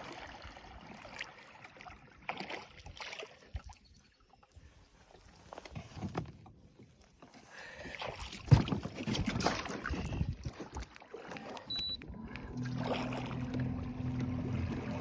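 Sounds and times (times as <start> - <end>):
water splashing: 0.0 - 4.4, 7.7 - 15.0
low steady hum: 11.7 - 15.0.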